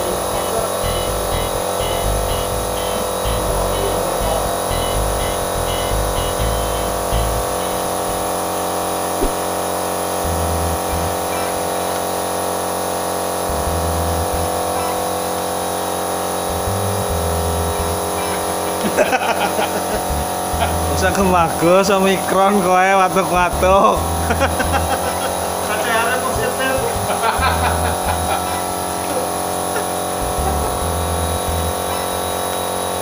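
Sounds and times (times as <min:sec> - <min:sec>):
steady electrical hum: 0:00.0 - 0:33.0
brief knock: 0:09.2 - 0:09.5.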